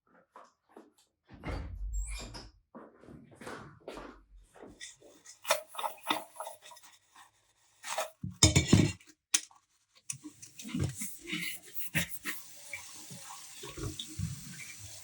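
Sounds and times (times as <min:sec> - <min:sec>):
dishes and cutlery clinking: 0:07.9 - 0:09.1.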